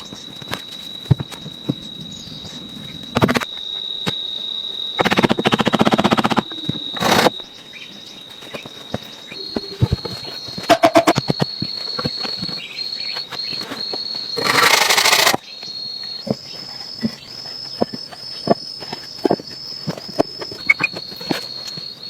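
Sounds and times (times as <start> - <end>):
insect trill: 0.0 - 22.0
rapid rattling burst: 14.4 - 15.4.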